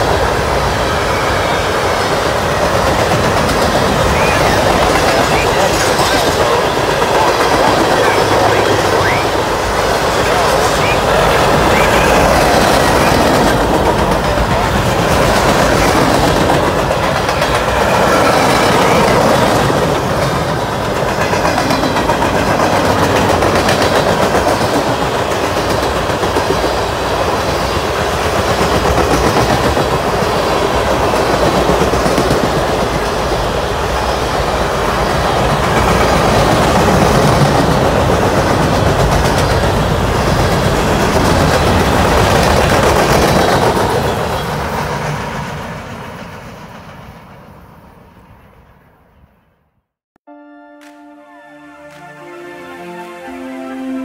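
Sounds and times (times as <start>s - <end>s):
steel wheels rumbling on rail: 0.0s - 48.8s
wheels clacking over rail joints: 2.1s - 8.4s.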